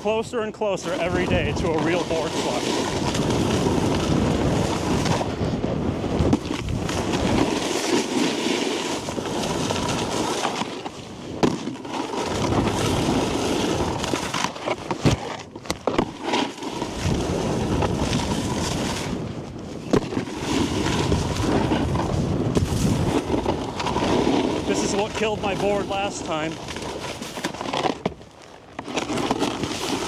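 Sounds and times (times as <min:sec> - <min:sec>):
wind on microphone: 0:00.0 - 0:07.7, 0:12.2 - 0:14.3, 0:16.8 - 0:27.2
snowboard scraping on snow: 0:00.0 - 0:30.0.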